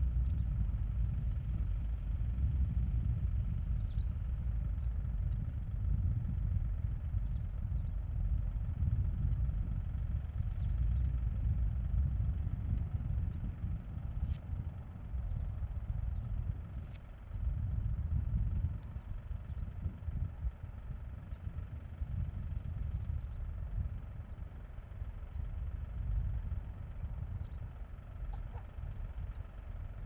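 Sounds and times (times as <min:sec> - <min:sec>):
faint bird chirps: 0:27.4 - 0:28.8.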